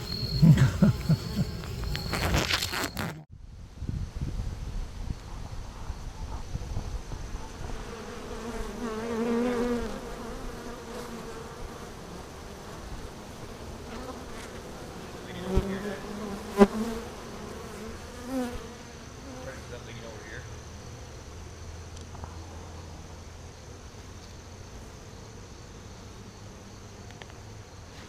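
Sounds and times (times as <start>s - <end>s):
honeybees buzzing: 0.0s - 3.2s, 7.4s - 21.5s.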